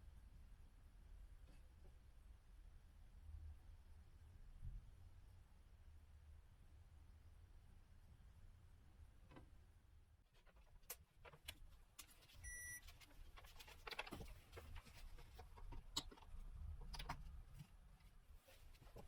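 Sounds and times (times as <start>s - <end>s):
faint clicks and knocks: 10.3s - 19.0s
short electronic beep: 12.4s - 12.8s.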